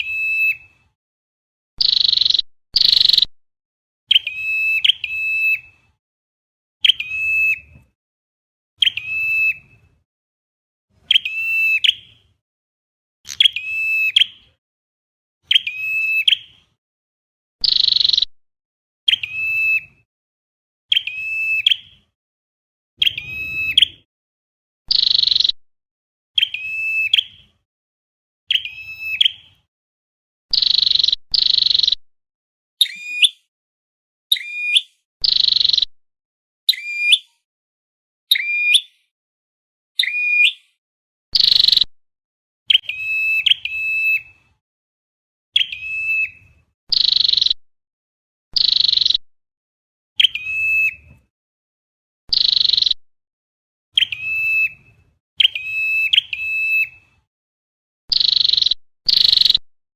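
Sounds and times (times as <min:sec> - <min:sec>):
bird calls with buzzing and ticking: 0:01.8 - 0:03.3, 0:13.3 - 0:14.4, 0:17.6 - 0:18.3, 0:30.5 - 0:32.0, 0:32.8 - 0:33.5, 0:45.6 - 0:47.6, 0:48.6 - 0:49.2, 0:52.3 - 0:53.0, 0:58.1 - 0:59.6.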